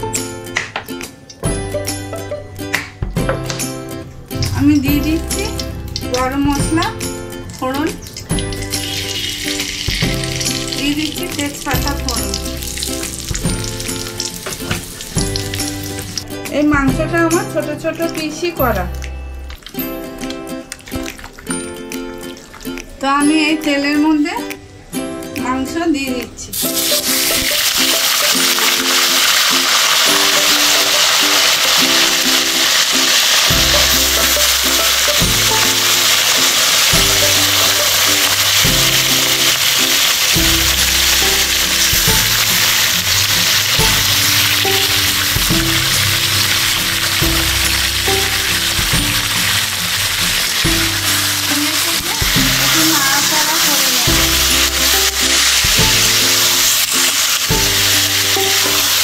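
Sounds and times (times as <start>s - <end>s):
background music with bass: 0.0s - 23.3s, 33.5s - 59.0s
chicken sizzling in hot oil: 4.8s - 16.3s, 26.5s - 59.0s
spatula turning food: 26.6s - 59.0s.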